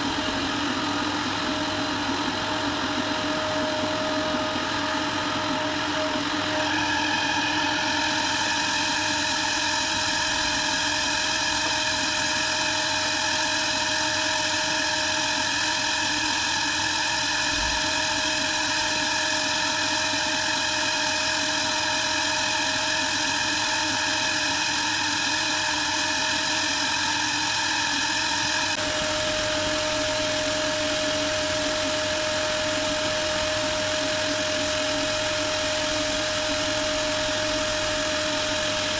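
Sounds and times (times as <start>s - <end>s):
power sander whining: 27.9s - 38.9s.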